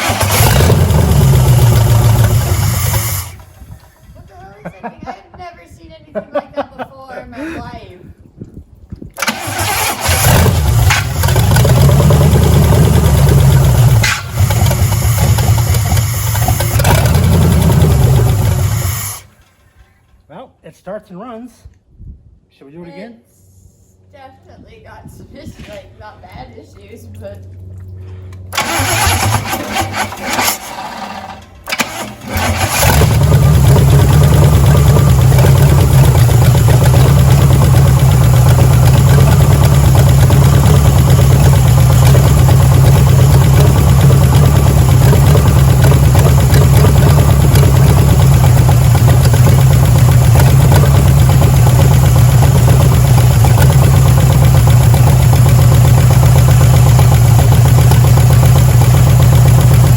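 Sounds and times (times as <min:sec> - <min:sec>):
starter cranking engine: 0:00.0 - 0:04.2, 0:09.2 - 0:19.4, 0:28.5 - 0:59.9
engine running with deep rumble: 0:00.0 - 0:05.1, 0:09.1 - 0:20.1, 0:25.1 - 0:59.9.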